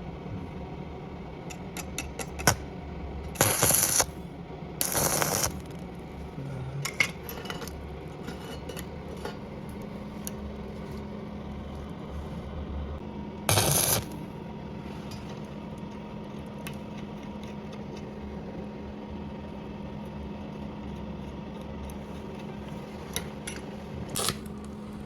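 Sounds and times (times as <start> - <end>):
harsh rasping bursts: 13.5 - 14.2.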